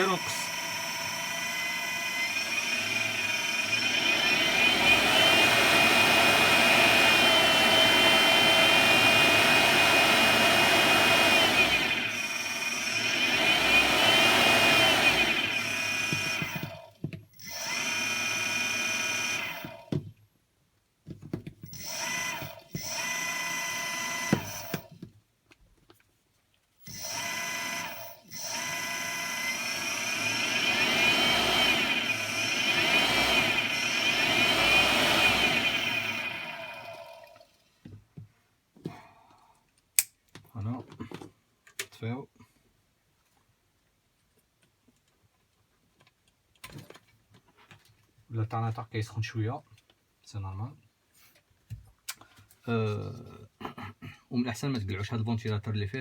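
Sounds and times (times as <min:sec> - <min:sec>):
high electric motor whine: 0:00.0 - 0:16.8, 0:17.4 - 0:19.8, 0:21.7 - 0:24.9, 0:26.9 - 0:37.4.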